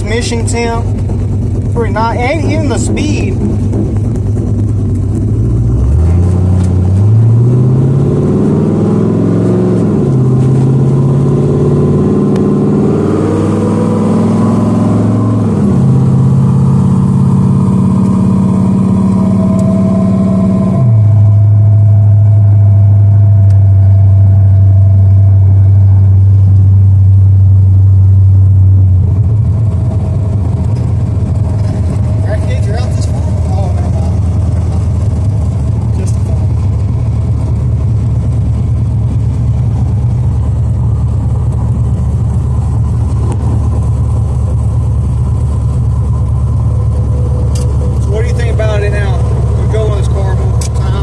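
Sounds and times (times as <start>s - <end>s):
car engine revving through gears: 1.6s - 51.0s.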